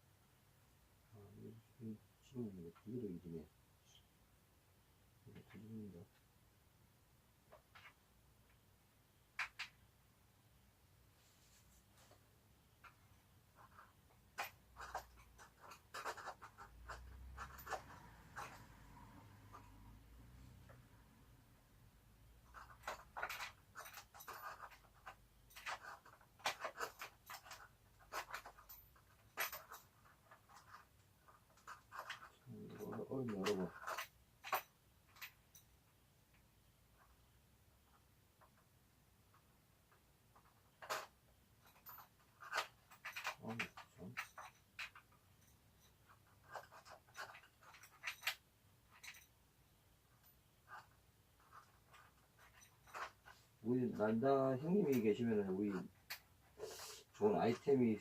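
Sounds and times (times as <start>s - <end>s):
hands scraping and clicking hardware: 12.7s - 20.9s, 22.4s - 35.7s, 37.9s - 49.4s, 50.1s - 53.5s, 55.8s - 57.6s.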